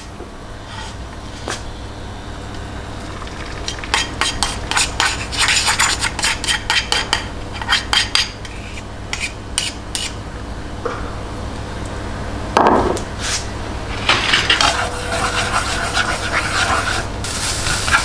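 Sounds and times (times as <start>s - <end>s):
utensil beating eggs in bowl: 3.0s - 8.0s, 14.4s - 18.0s.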